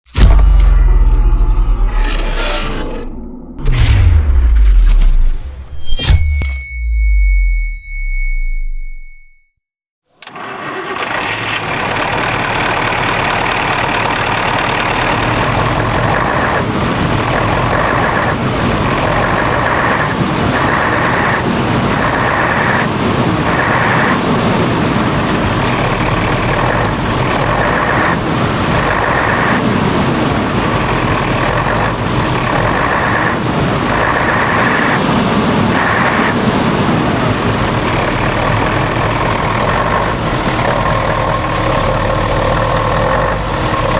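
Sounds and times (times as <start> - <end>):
coach diesel engine running: 10.2 - 43.9.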